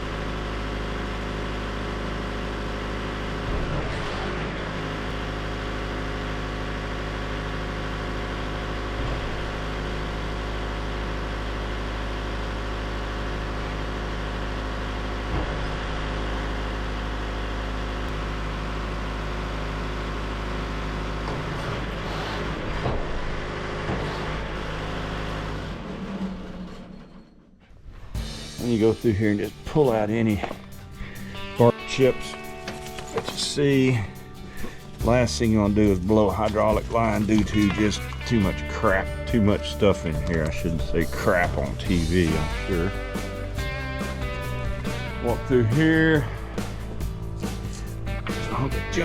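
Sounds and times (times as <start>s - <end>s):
diesel engine running: 0.0s - 49.0s
machine clunks: 3.4s - 4.8s, 15.2s - 16.0s, 21.2s - 24.9s.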